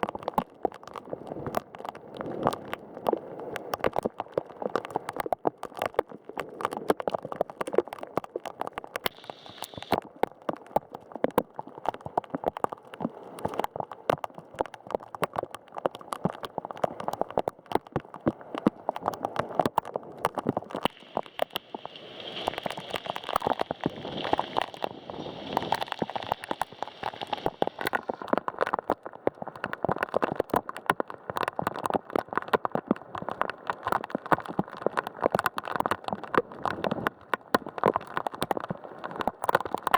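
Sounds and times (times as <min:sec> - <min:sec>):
heavy rain on hard surface: 0:09.1 - 0:10.0, 0:20.8 - 0:29.2.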